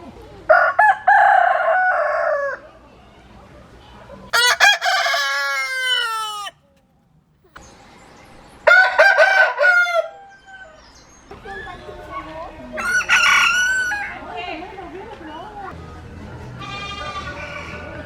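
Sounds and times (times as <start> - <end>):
rooster crowing: 4.3 - 6.6.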